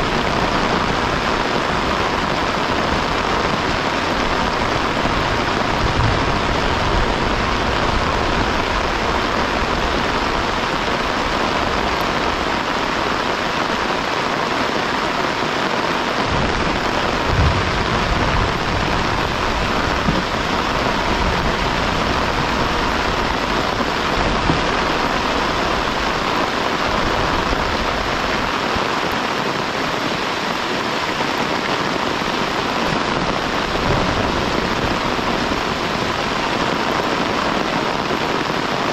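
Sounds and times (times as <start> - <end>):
heavy rain falling: 0.0 - 38.9
low thumps: 5.7 - 7.2, 16.3 - 23.0, 33.6 - 35.7.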